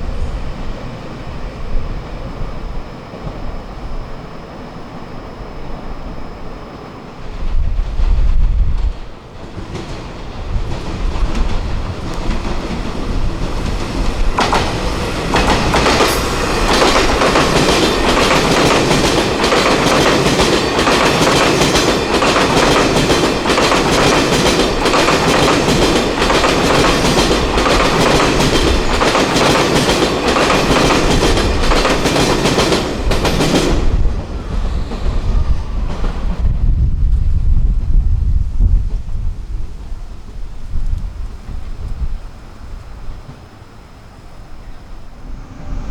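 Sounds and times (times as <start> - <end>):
train wheels clattering over rail joints: 8.1 - 36.5.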